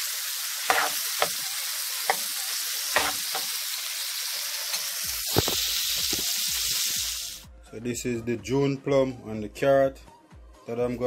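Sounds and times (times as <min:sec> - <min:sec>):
food sizzling in a pan: 0:00.0 - 0:07.5
spoon scraping and knocking pan: 0:00.6 - 0:03.6.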